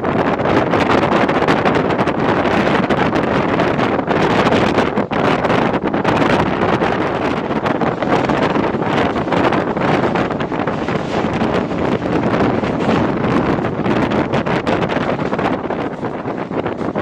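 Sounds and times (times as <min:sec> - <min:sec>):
wind on microphone: 0:00.0 - 0:17.0
electric train running: 0:06.0 - 0:17.0.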